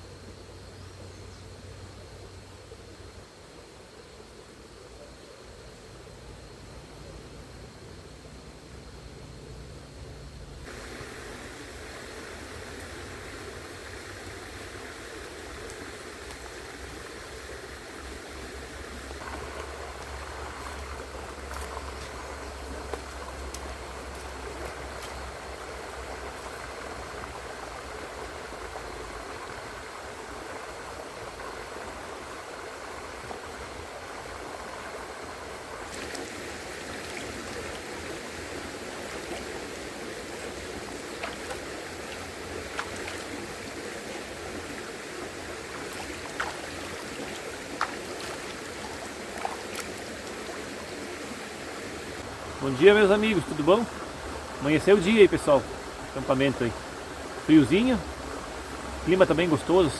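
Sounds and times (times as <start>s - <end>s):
river flowing over shallow bed: 0.0s - 59.9s
faint ticks: 15.6s - 16.5s, 22.8s - 25.2s.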